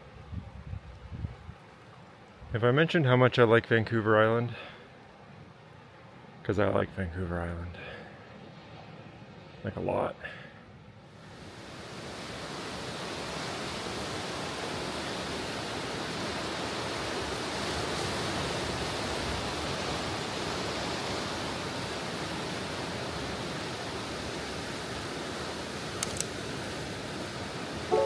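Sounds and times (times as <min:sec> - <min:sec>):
rushing water: 0:11.1 - 0:28.0.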